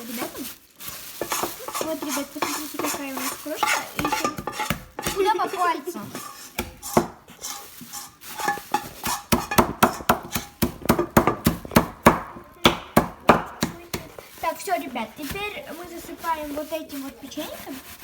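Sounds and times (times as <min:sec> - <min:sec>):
cookies being tapped into crumbs: 0:08.8 - 0:14.2.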